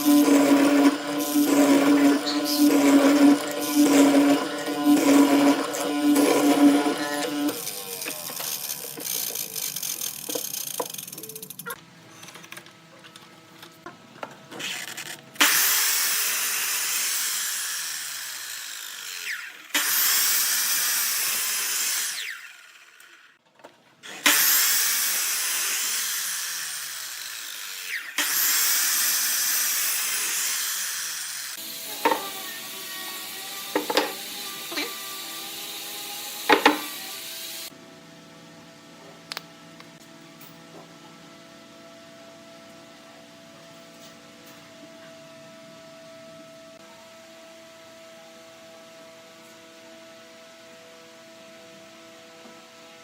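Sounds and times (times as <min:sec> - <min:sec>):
power tool working wood: 0:00.0 - 0:11.8, 0:14.6 - 0:23.4, 0:24.0 - 0:37.8.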